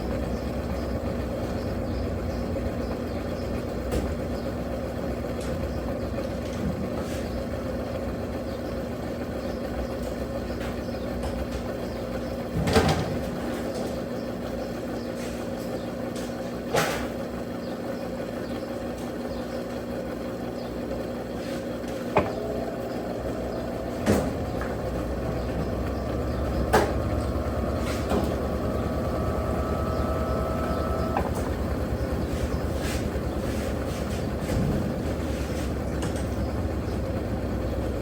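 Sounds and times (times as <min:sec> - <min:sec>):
washing machine motor hum: 0:00.0 - 0:38.0
motor whine rising in pitch: 0:22.2 - 0:38.0.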